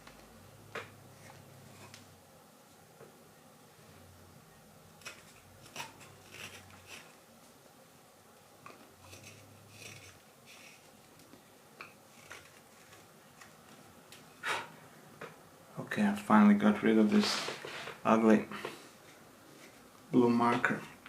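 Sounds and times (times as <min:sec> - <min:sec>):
knife shaving wood: 0:05.0 - 0:07.2, 0:09.0 - 0:11.3, 0:12.1 - 0:13.5.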